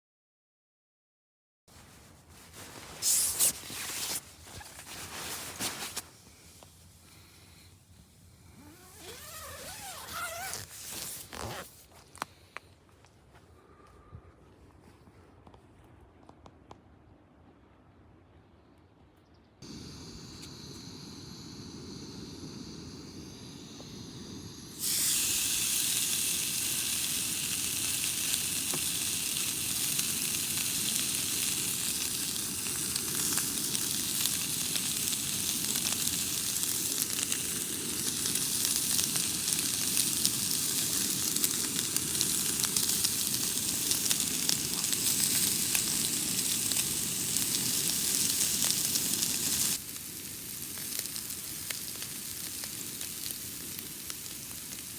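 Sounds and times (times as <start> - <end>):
food sizzling in a hot pan: 19.6 - 54.9.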